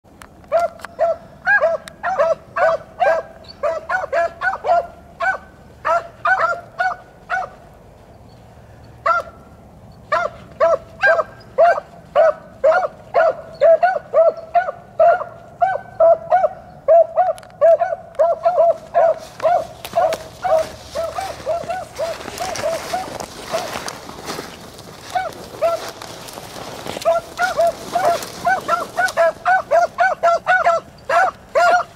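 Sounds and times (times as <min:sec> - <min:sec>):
dogs barking: 0:00.5 - 0:07.7, 0:09.0 - 0:09.5, 0:10.1 - 0:24.4, 0:25.0 - 0:31.9.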